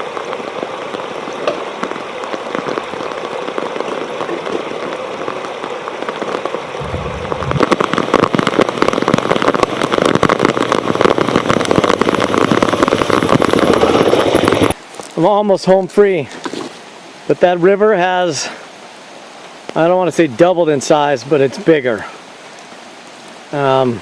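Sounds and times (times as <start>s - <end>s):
heavy rain: 0.0s - 24.0s
raindrops hitting camera case: 0.1s - 15.3s.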